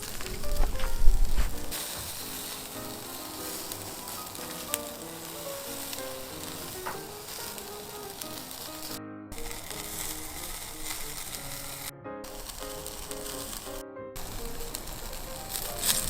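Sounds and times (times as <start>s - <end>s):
sharp pops: 0.0s - 11.7s
meat sizzling on a grill: 0.0s - 16.0s
soft background music: 0.0s - 16.0s.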